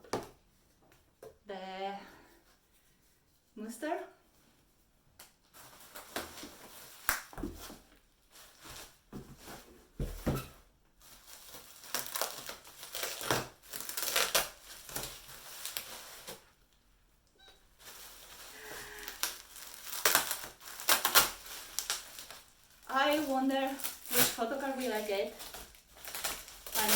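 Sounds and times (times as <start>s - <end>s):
packaging crinkling and tearing: 11.0s - 16.5s, 17.8s - 26.9s.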